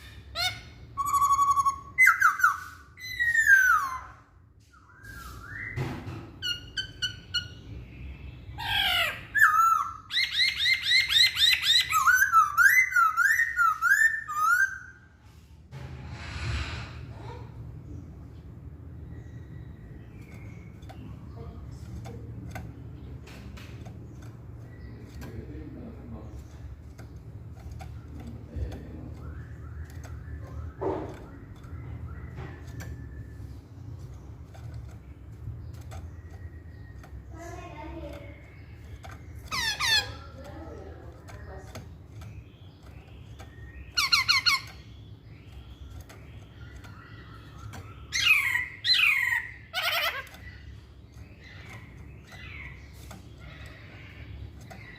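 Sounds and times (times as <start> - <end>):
bird singing whistled song: 0.9 - 8.6, 9.3 - 15.1, 28.3 - 34.0
low hum: 15.2 - 39.5
scattered clicks: 20.2 - 48.3, 50.1 - 54.9.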